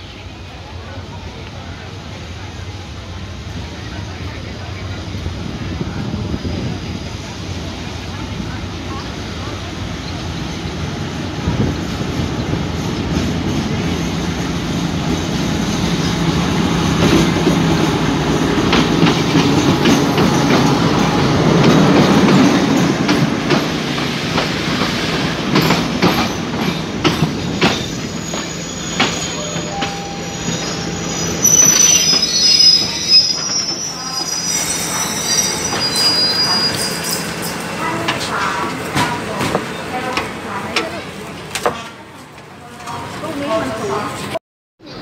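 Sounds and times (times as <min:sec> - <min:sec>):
wheels clacking over rail joints: 0:17.0 - 0:30.2
brake and wheel squeals: 0:27.7 - 0:37.7.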